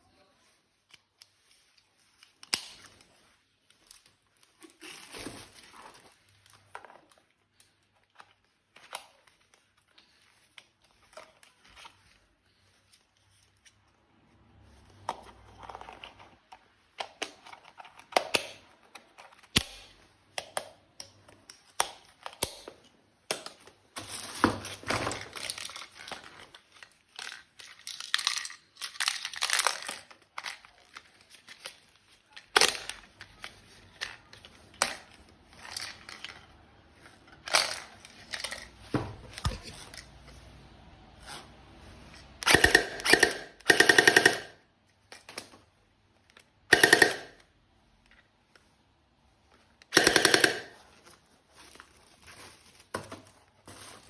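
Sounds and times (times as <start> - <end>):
plastic packaging crinkling and tearing: 0.4 - 13.6, 23.9 - 38.8, 50.8 - 54.0
plastic parts clicking and knocking: 15.0 - 36.6, 42.2 - 48.7, 49.5 - 51.2.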